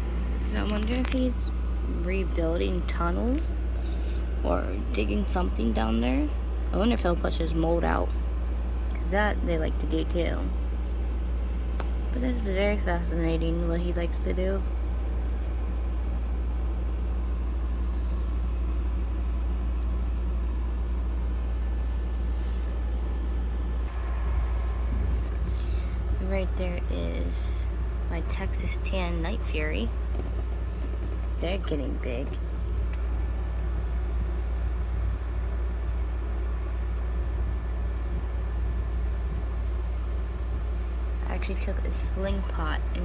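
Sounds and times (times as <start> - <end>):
cricket chirping: 0.0 - 43.0
steady low hum: 0.0 - 43.0
low rumble: 22.1 - 43.0.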